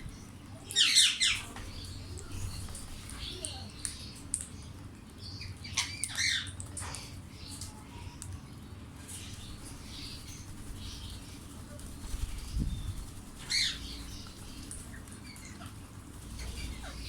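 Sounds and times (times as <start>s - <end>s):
parakeets chirping softly: 0.0s - 17.0s
wings flapping: 9.3s - 17.0s.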